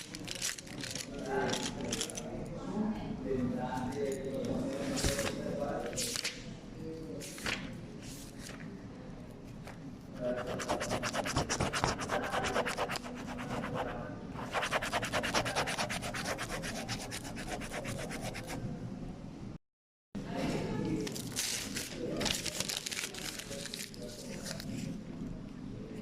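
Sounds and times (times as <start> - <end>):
rapid rubbing strokes: 10.2 - 18.6.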